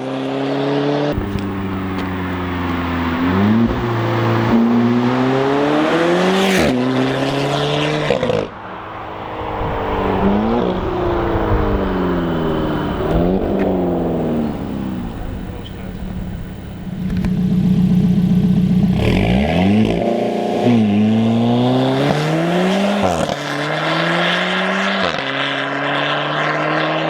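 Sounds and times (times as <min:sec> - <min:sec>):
sports car engine accelerating: 0:00.0 - 0:27.0.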